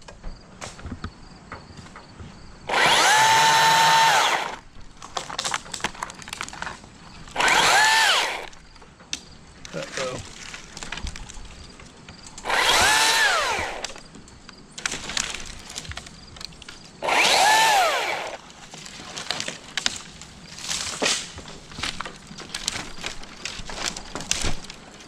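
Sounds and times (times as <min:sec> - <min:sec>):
chainsaw cutting wood: 0:02.7 - 0:04.6, 0:07.3 - 0:08.6, 0:12.4 - 0:14.0, 0:17.0 - 0:18.6
crackles and clicks: 0:04.9 - 0:07.4, 0:08.5 - 0:12.5, 0:13.8 - 0:17.0, 0:18.4 - 0:25.0.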